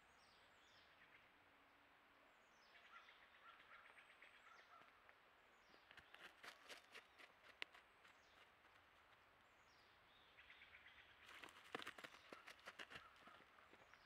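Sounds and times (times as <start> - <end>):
quick bird chips: 5.8 - 9.1, 11.2 - 14.0
hooves crackling on dry leaves: 11.3 - 14.0.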